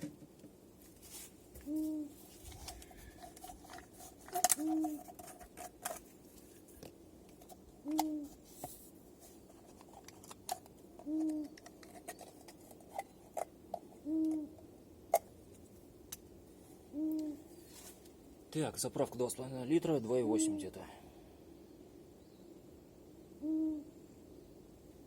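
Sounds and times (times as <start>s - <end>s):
low hooting call: 23.3s - 24.0s.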